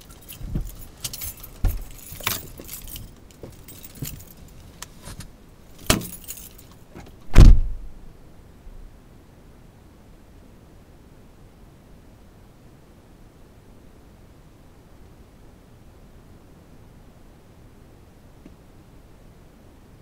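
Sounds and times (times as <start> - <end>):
clicks rattles and knocks: 0.0 - 7.6
heavy thump: 1.5 - 2.8, 7.0 - 8.0.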